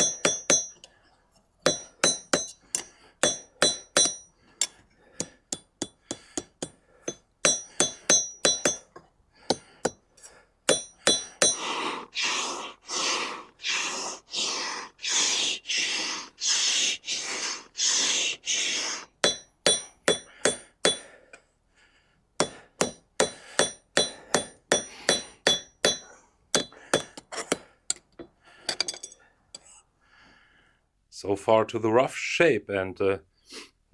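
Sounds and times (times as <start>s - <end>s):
hammer striking hot steel on anvil: 0.0s - 0.9s, 1.6s - 10.0s, 10.7s - 11.7s, 19.2s - 21.2s, 22.4s - 28.0s
rasping strokes: 0.0s - 0.9s, 1.6s - 8.9s, 9.5s - 21.1s, 22.4s - 27.6s.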